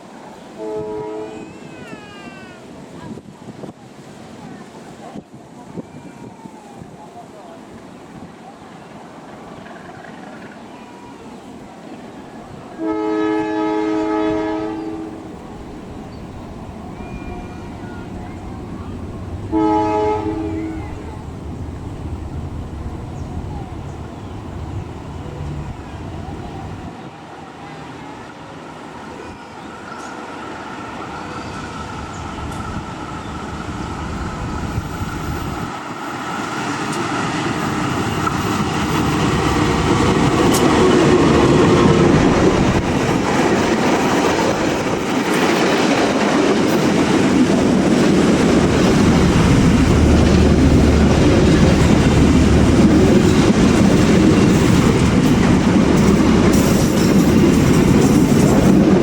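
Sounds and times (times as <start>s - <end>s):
diesel train rumble: 12.8s - 27.0s, 30.7s - 59.0s
wheels clattering on rails: 36.8s - 59.0s.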